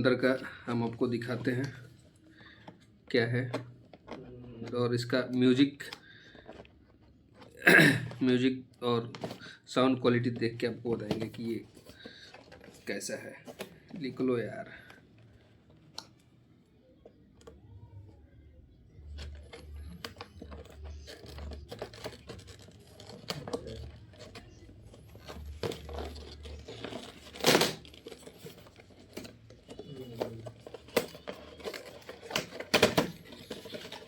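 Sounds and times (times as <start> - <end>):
packaging rustling and crinkling: 10.2 - 16.2, 19.0 - 34.0
packaging tearing: 19.2 - 34.0.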